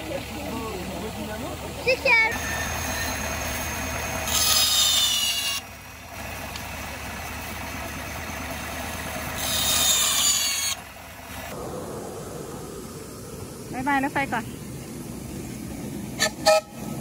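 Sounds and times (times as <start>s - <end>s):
miniature train rumbling: 0.0s - 17.0s
high-pitched metallic squeals: 2.3s - 5.7s, 9.4s - 10.8s.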